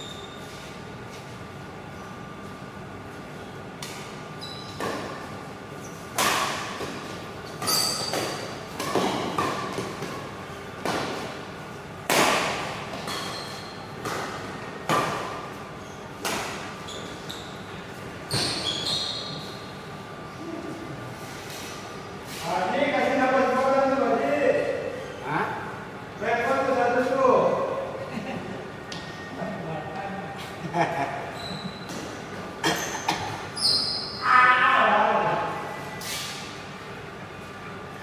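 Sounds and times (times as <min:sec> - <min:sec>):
shoe squeaks: 0:00.0 - 0:00.7, 0:04.4 - 0:04.9, 0:07.6 - 0:08.2, 0:13.1 - 0:14.0, 0:15.8 - 0:16.2, 0:16.8 - 0:19.8, 0:31.3 - 0:32.0, 0:32.7 - 0:34.2
racket hitting shuttlecock: 0:12.0 - 0:13.4, 0:14.0 - 0:15.5.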